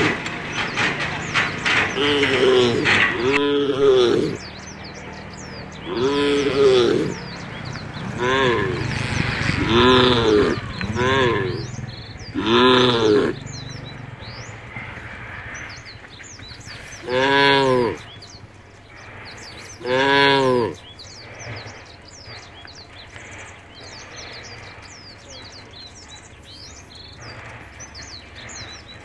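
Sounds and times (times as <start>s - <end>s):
cattle mooing: 0.0s - 18.2s, 19.1s - 21.8s
birds chirping: 0.0s - 29.0s.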